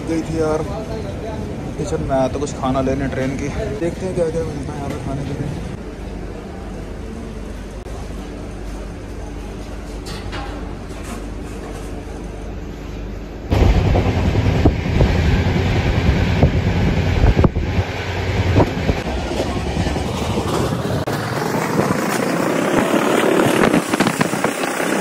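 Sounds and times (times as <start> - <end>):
rushing air: 13.5 - 25.0
train wheels rumbling on rail: 13.5 - 25.0.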